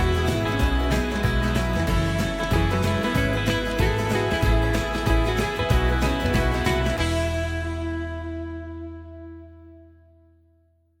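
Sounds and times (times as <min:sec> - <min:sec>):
beat: 0:00.0 - 0:08.3
plucked guitar: 0:00.0 - 0:10.6
bass line: 0:00.0 - 0:10.8.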